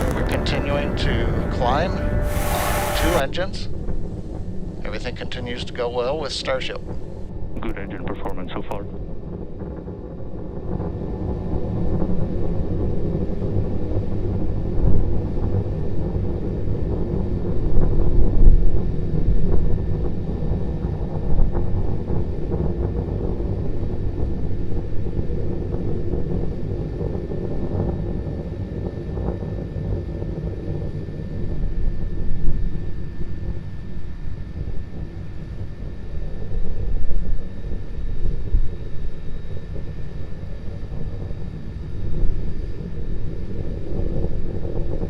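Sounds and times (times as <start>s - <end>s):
rocket engines rumbling: 0.0s - 9.1s.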